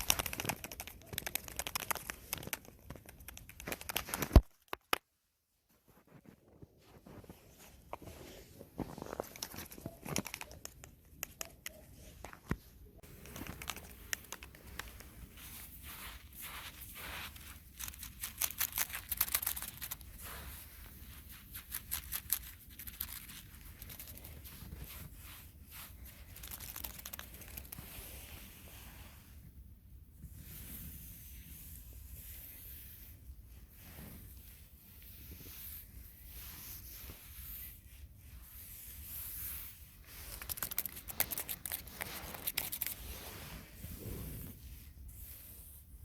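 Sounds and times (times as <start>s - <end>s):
small sharp crackles: 0.0s - 5.1s, 9.0s - 11.8s, 13.0s - 28.1s
rustling and crinkling: 0.0s - 29.5s, 30.2s - 46.0s.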